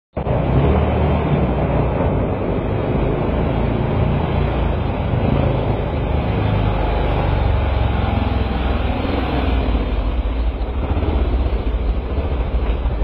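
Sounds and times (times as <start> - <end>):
dirt bike engine running: 0.2 - 13.0.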